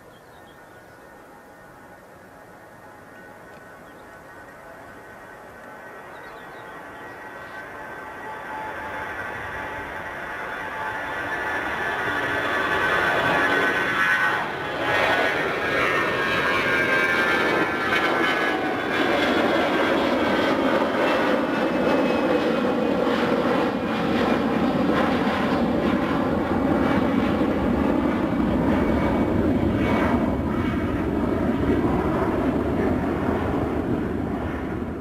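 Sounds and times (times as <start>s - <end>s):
jet engines whining: 0.0s - 35.0s
loud jet rumble: 4.6s - 35.0s.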